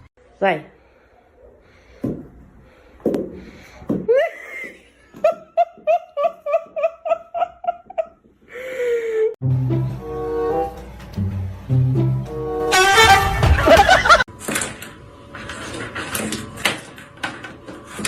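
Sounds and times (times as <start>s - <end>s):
person laughing: 4.1s - 9.4s, 13.6s - 14.2s
music: 9.4s - 14.2s.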